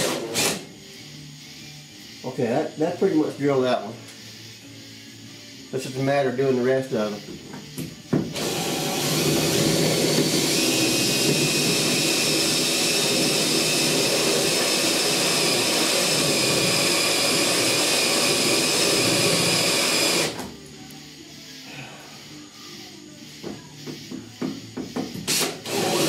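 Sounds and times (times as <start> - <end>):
drill motor whine: 6.9 - 20.4, 25.3 - 26.0.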